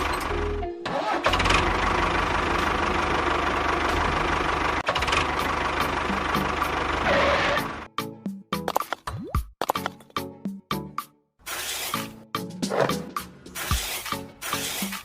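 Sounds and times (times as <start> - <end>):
small engine running: 1.0 - 7.9.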